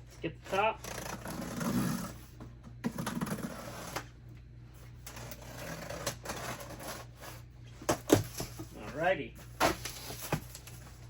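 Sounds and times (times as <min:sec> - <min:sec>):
cardboard box scraping and rattling: 0:00.8 - 0:04.1, 0:05.1 - 0:08.9, 0:09.5 - 0:10.8.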